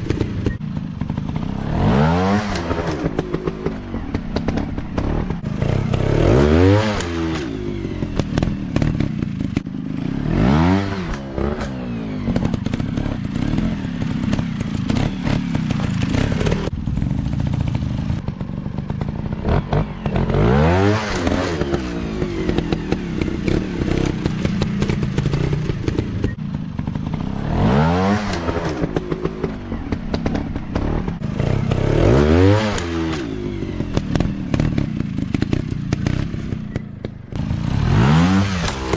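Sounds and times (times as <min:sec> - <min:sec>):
dirt bike engines revving: 0:00.0 - 0:38.9.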